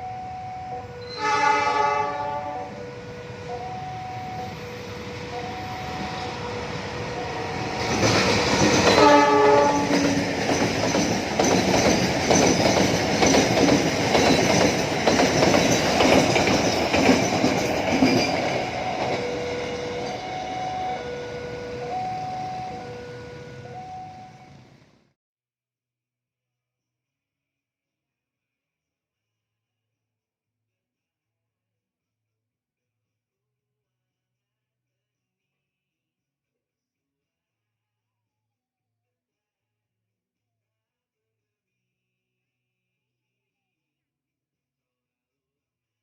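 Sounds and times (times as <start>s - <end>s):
two-tone level-crossing alarm: 0.0s - 10.6s, 14.2s - 24.8s
train horn: 0.1s - 10.4s, 18.0s - 24.8s
train wheels clattering over rail joints: 7.8s - 9.1s, 9.7s - 20.2s.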